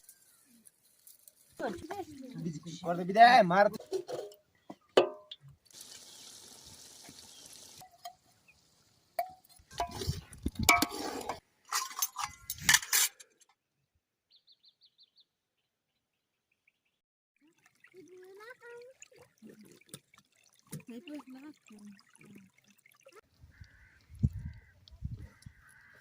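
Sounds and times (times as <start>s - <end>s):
dishes and utensils clinking: 9.2s - 13.3s.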